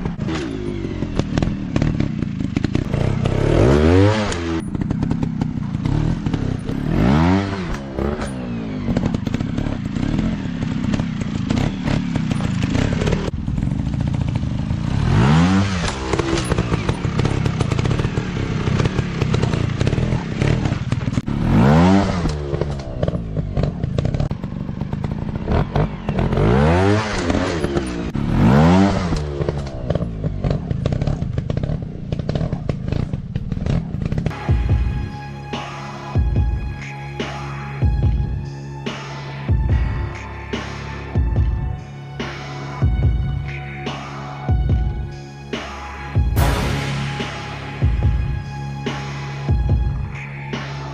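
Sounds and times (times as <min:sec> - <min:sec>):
dirt bike engines revving: 0:00.0 - 0:34.6.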